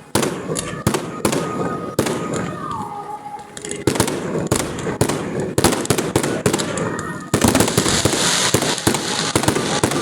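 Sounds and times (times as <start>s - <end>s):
fireworks bangs: 0.0s - 10.0s
firework whistle: 6.1s - 10.0s.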